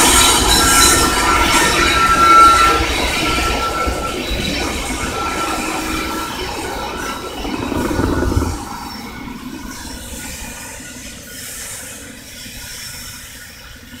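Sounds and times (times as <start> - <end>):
freight train running: 0.0 - 14.0
loud low rumble: 7.4 - 9.6.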